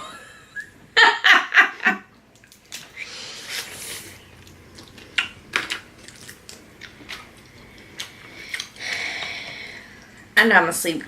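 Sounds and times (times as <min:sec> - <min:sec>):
chewing and mouth noise: 0:02.3 - 0:08.8.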